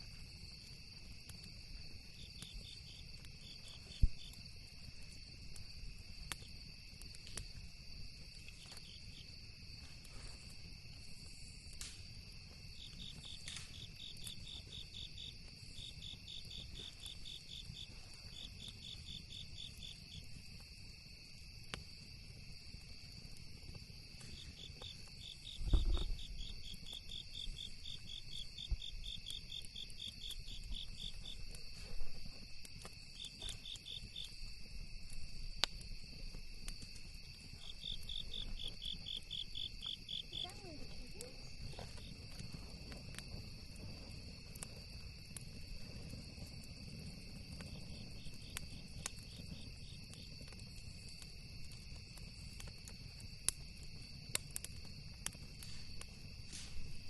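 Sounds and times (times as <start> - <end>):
campfire crackles and pops: 0.0 - 57.0
crickets trilling: 0.0 - 57.0
insect pulsing chirp: 12.7 - 20.3, 24.3 - 32.3, 32.9 - 42.6
low thump: 25.6 - 26.2.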